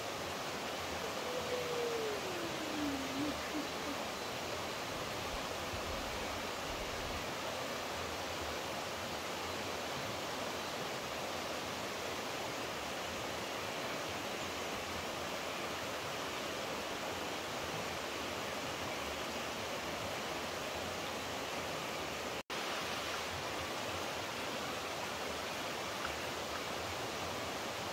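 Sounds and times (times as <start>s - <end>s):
running water rushing: 0.0s - 27.9s.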